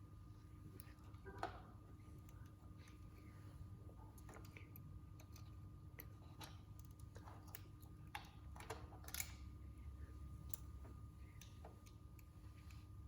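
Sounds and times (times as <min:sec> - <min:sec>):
faint steady hum: 0:00.0 - 0:13.0
small parts and tools clicking: 0:04.2 - 0:09.4.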